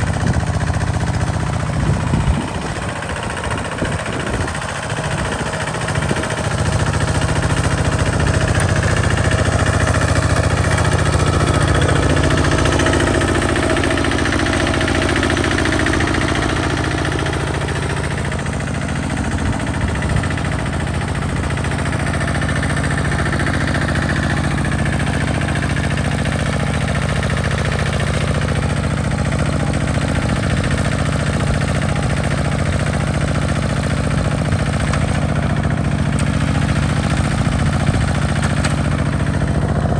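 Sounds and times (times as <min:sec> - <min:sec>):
diesel tractor engine chugging: 0:00.0 - 0:39.9.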